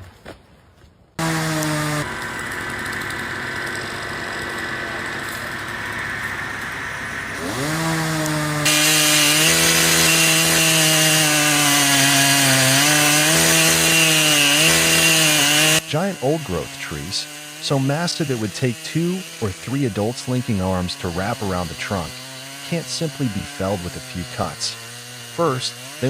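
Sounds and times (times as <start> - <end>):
chainsaw cutting wood: 1.2 - 26.0.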